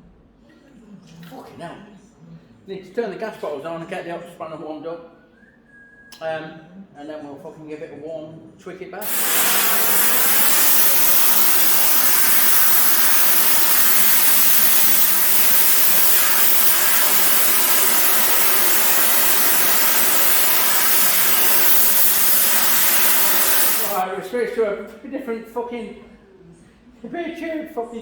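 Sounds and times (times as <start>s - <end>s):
gas torch hissing: 9.0s - 24.0s.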